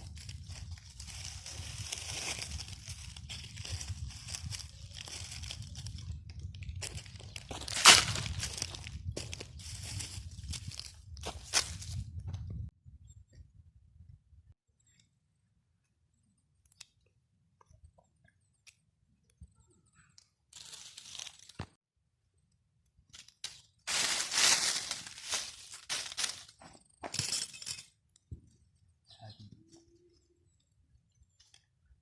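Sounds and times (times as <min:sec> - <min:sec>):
dry twigs and leaves crunching: 0:00.0 - 0:12.0, 0:20.6 - 0:21.8, 0:23.2 - 0:27.8.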